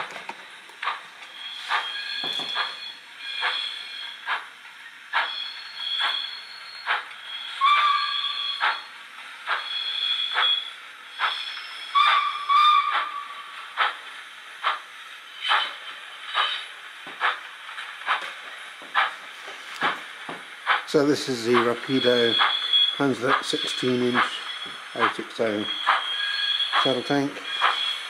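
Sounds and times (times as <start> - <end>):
steam engine chuffs: 0.0 - 28.0
steam whistle toots: 5.2 - 8.9, 9.6 - 13.6.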